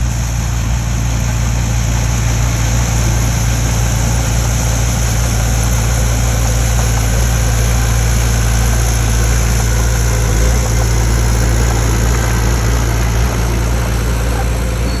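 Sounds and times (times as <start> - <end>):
heavy engine idling: 0.0 - 15.0.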